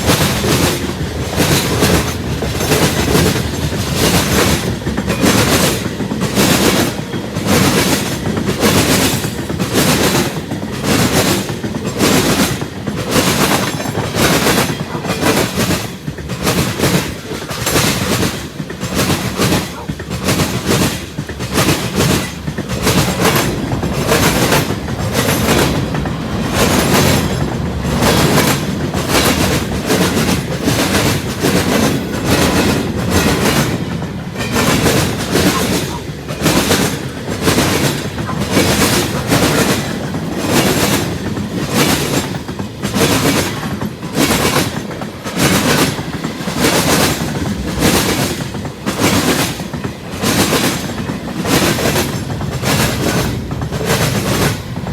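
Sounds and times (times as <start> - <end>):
train rumble: 0.0 - 54.9
train wheels clacking over rail joints: 0.0 - 54.9.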